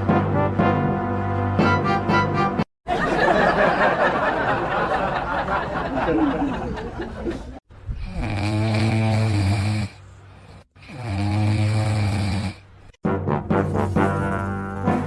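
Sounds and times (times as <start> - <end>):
music: 0.0 - 2.7, 13.0 - 15.0
laughter: 2.9 - 7.6
pet snoring: 8.0 - 12.6.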